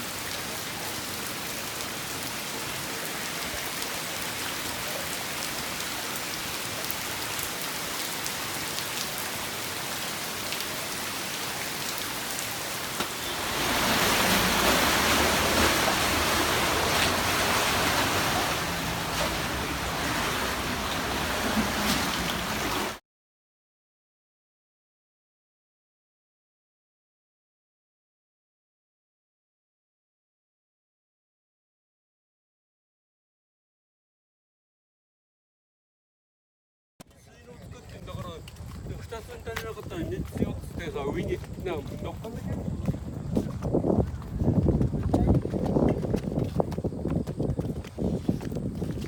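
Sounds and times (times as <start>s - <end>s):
rain falling: 0.0s - 23.0s.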